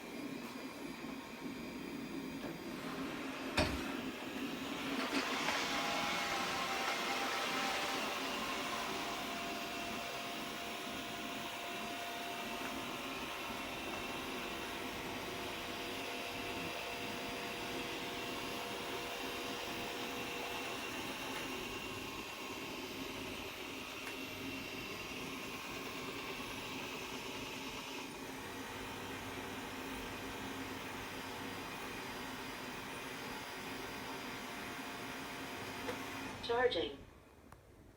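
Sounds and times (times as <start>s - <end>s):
robot vacuum cleaner whirring: 0.0s - 36.9s.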